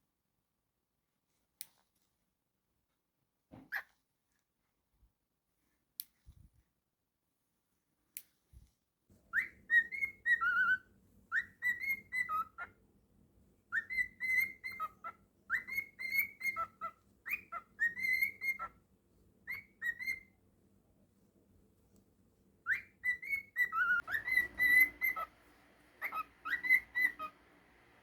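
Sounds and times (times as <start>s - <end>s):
cockatiel whistling a tune: 9.3s - 12.7s, 13.7s - 18.8s, 19.4s - 20.4s, 22.6s - 25.4s, 26.0s - 27.5s.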